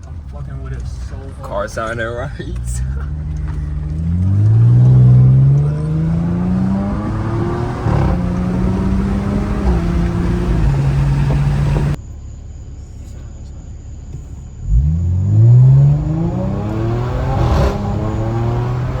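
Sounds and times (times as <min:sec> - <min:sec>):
loud car engine accelerating: 0:02.8 - 0:12.0, 0:14.6 - 0:19.0.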